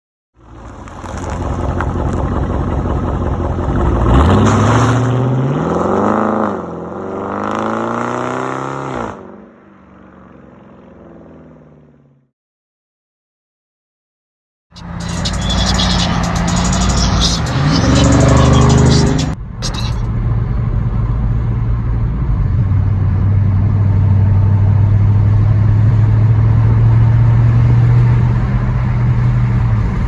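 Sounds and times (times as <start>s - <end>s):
quieter steady engine note: 0.4s - 4.0s
car exhaust accelerating hard: 0.4s - 8.9s, 14.8s - 30.0s.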